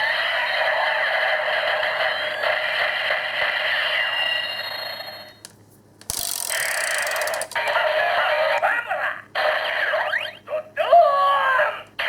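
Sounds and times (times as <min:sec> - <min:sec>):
toy electronic sound effects: 0:06.1 - 0:08.2.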